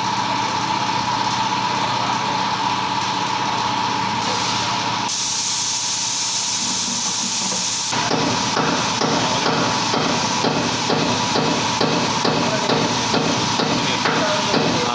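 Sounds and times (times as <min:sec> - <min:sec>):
mechanical running noise with whine: 0:00.0 - 0:14.9
high hiss of escaping pressure: 0:04.3 - 0:07.9.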